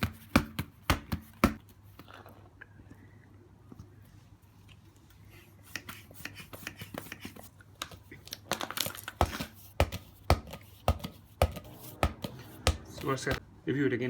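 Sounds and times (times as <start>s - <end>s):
ball thumping: 0.0s - 1.6s, 9.2s - 13.4s
hands handling a football: 5.9s - 13.4s.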